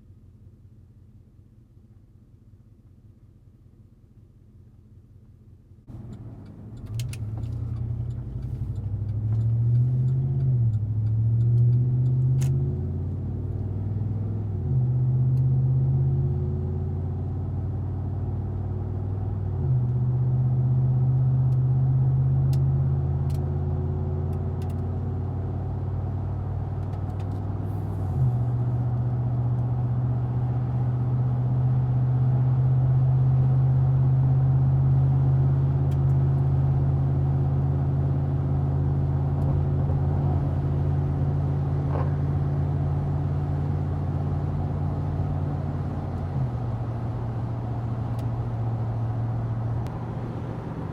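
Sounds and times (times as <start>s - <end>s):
engine exhaust accelerating: 25.4s - 50.9s.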